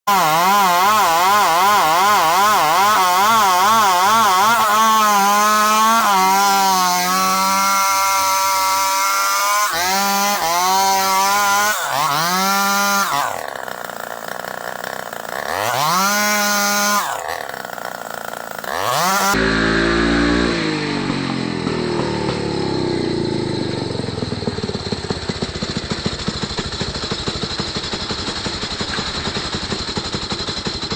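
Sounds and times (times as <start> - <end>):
chainsaw cutting wood: 0.1 - 30.9
dull steady engine rumble: 19.4 - 30.3.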